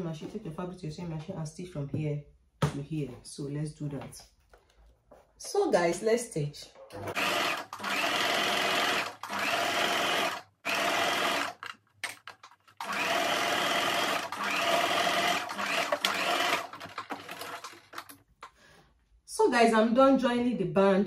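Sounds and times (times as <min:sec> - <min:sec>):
sewing machine stitching: 0:07.0 - 0:18.2.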